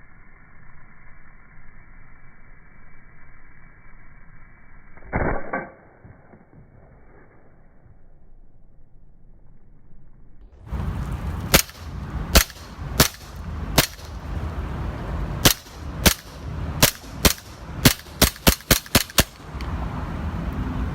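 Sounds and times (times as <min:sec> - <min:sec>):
steady background noise: 0:05.8 - 0:20.9
pistol shots: 0:11.5 - 0:14.2, 0:15.4 - 0:19.4.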